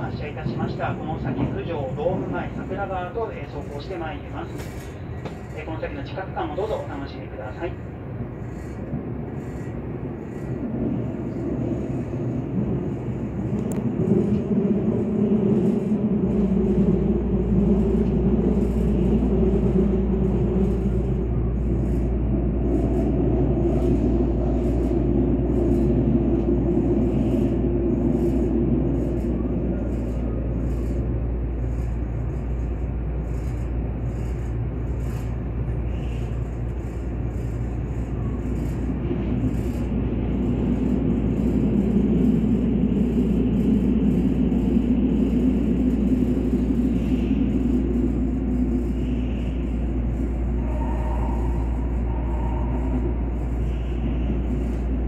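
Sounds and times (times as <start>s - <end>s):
train wheels rumbling: 0.0s - 55.0s
deep steady hum: 36.8s - 55.0s.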